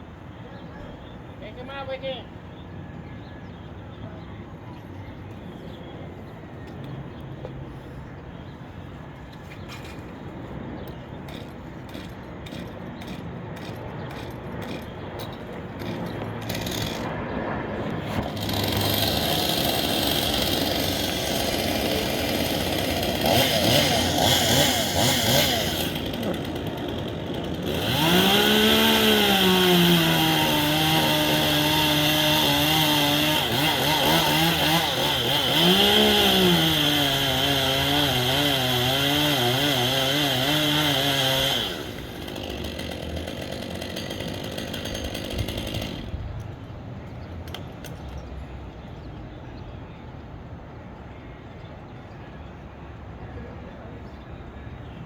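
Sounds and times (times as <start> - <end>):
chainsaw revving: 15.8 - 17.1, 18.2 - 46.2.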